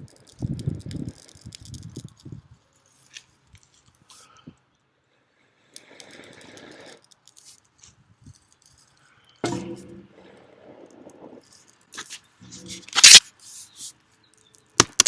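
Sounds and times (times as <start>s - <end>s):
dry tinder crackling and rustling: 11.0s - 13.2s.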